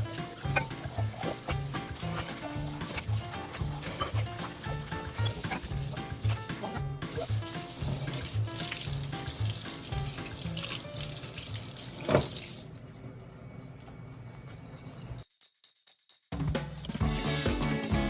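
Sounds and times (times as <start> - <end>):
tap running into a sink: 0.0 - 12.7
background music with a beat: 5.7 - 7.9, 16.3 - 18.0.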